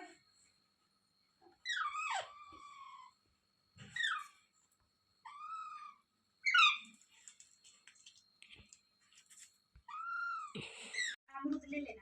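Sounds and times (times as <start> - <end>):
parakeet calling: 5.2 - 6.9.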